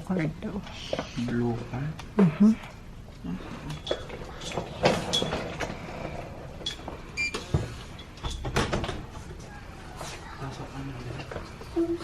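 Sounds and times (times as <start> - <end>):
door and bags clattering: 4.1 - 9.2.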